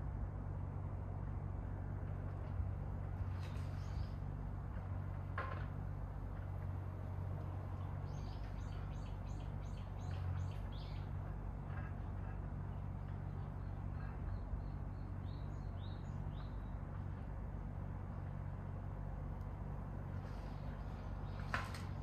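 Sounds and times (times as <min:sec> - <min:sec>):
songbirds singing: 0:03.4 - 0:04.4, 0:07.4 - 0:17.2, 0:20.2 - 0:22.0.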